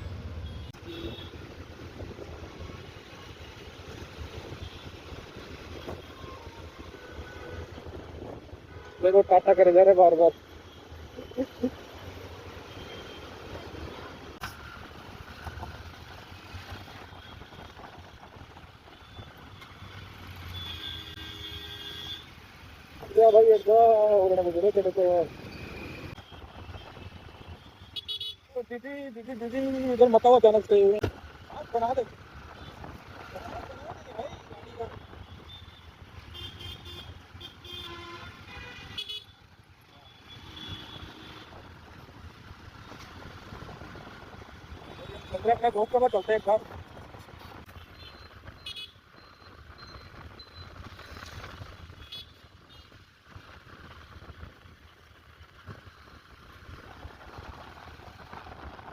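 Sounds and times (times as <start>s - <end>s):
road and wind noise: 0.0s - 58.9s
vehicle horns tooting: 20.5s - 22.4s, 34.4s - 39.4s.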